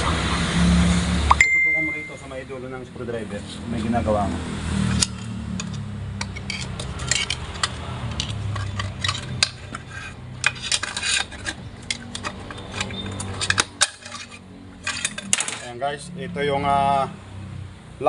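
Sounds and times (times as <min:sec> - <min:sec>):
screwdriver scraping metal: 0:04.9 - 0:15.7.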